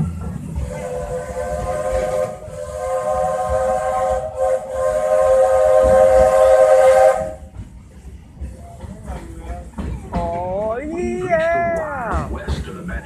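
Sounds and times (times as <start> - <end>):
steam locomotive whistle: 0.6 - 7.5.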